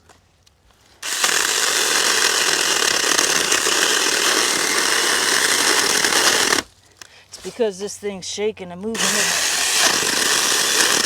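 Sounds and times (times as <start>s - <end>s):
mini chainsaw cutting wood: 1.0s - 6.7s, 8.9s - 11.0s.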